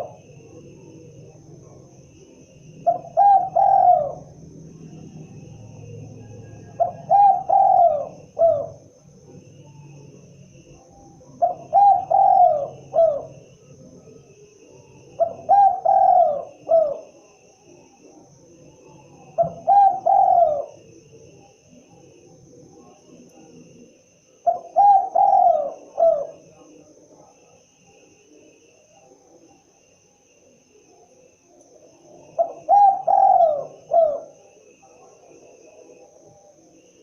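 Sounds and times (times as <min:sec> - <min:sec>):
dove cooing: 0:00.0 - 0:08.9, 0:10.8 - 0:17.3, 0:18.7 - 0:22.2, 0:24.3 - 0:27.0, 0:31.8 - 0:37.0.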